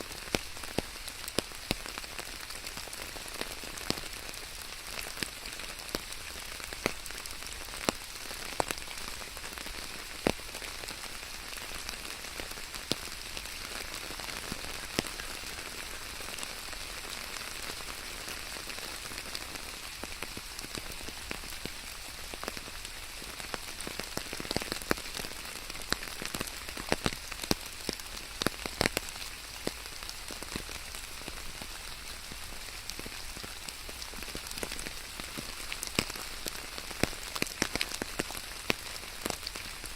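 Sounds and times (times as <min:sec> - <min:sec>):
close raindrops striking: 0:00.0 - 0:39.9
steady rain falling: 0:00.0 - 0:39.9.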